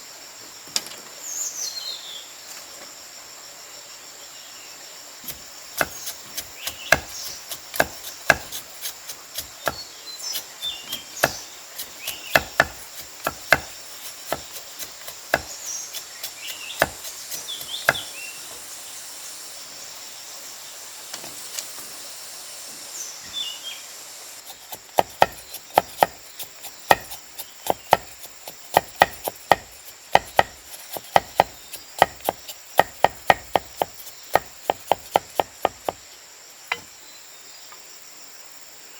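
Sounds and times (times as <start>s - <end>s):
high insect drone: 1.7s - 38.9s
blade chopping wood: 5.3s - 18.2s, 24.5s - 36.0s.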